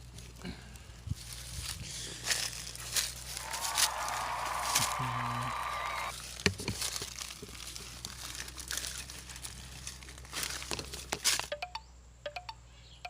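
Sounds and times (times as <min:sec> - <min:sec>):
crackling rustling noise: 0:00.0 - 0:05.0, 0:06.1 - 0:11.5.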